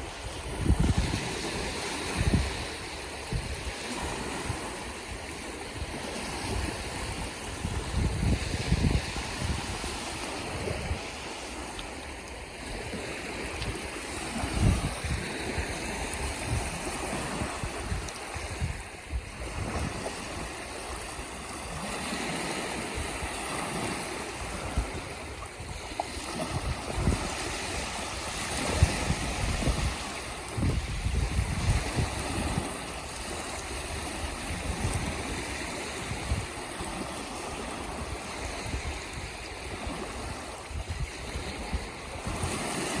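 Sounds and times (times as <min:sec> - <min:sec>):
seawater washing and splashing: 0:00.0 - 0:43.0
wind buffeting microphone: 0:00.0 - 0:43.0.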